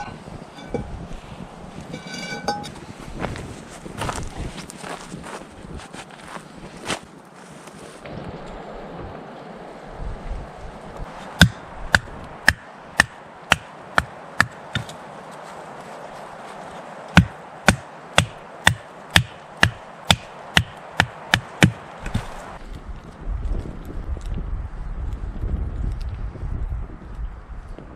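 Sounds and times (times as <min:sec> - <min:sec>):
chopping blows on wood: 0:17.2 - 0:22.4.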